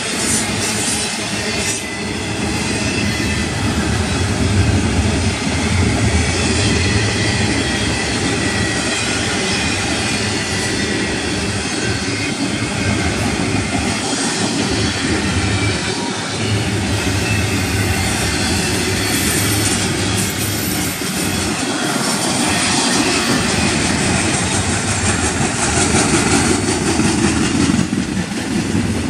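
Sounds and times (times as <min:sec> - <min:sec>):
train wheels rumbling and rattling: 0:00.0 - 0:29.0
faint high wheel squeal: 0:05.7 - 0:25.3.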